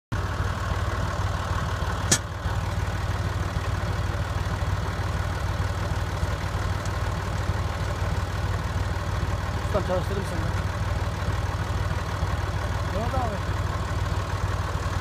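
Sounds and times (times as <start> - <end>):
tractor engine idling: 0.1 - 15.0
sharp click: 2.1 - 2.3.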